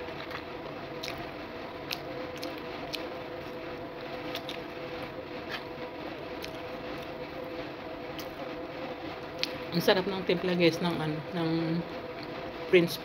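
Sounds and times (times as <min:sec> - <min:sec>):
person chewing food: 0:00.0 - 0:01.2, 0:01.9 - 0:03.6, 0:04.3 - 0:04.6
steady background hum: 0:00.0 - 0:13.0.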